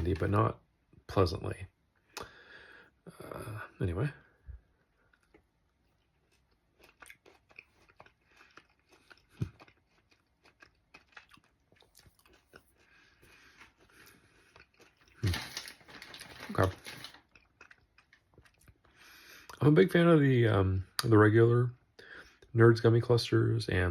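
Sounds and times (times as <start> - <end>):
person chewing crunchy candy: 5.0 - 19.6.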